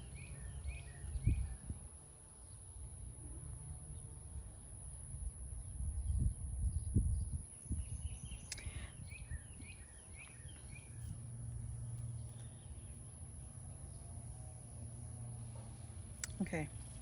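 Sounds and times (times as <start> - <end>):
small bird chirping: 0.0 - 1.8, 6.0 - 14.2
low wind rumble: 0.0 - 2.0, 2.6 - 12.0.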